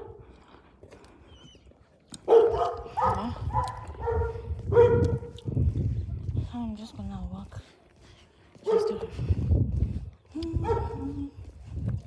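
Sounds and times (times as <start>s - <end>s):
dog barking: 2.2s - 5.3s, 8.6s - 9.1s, 10.6s - 11.0s.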